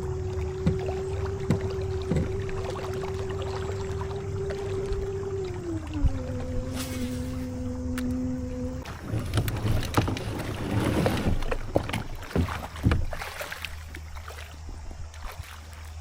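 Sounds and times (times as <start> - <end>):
gear knocking in plastic kayak: 0.0 - 4.0, 7.9 - 14.8
low steady rumble: 0.0 - 13.1.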